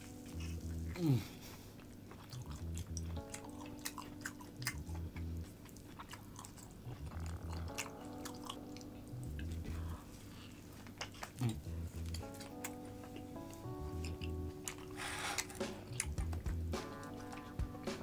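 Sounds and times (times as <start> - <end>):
soft background music: 0.0 - 18.0
chewing and biting steak: 1.8 - 10.0, 10.8 - 17.6.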